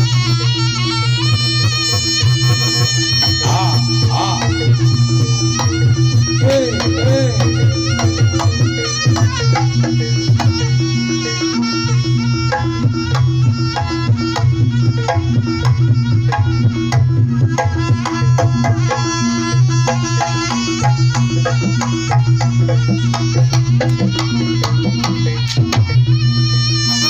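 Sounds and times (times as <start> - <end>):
hand drums: 1.0 - 27.0.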